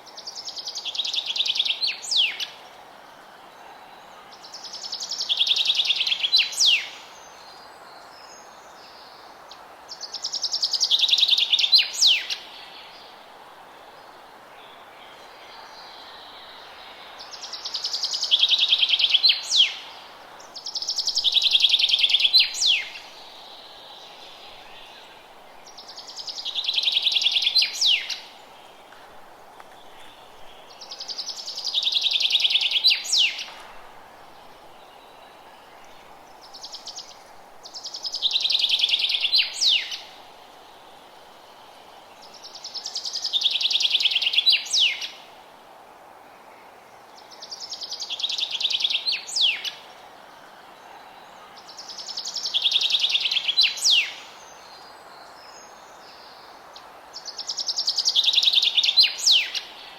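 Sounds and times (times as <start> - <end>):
faint background hiss: 0.0 - 59.9
songbird trilling song: 4.4 - 9.0, 10.0 - 13.0, 14.6 - 28.9, 29.7 - 33.6, 34.4 - 40.2, 42.2 - 45.3, 47.3 - 49.9, 51.1 - 56.5, 57.2 - 59.9.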